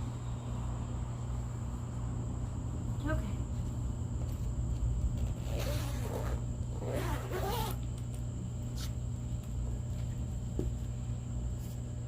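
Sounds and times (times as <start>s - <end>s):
steady low hum: 0.0s - 12.0s
zipper-like rasp: 5.4s - 7.8s.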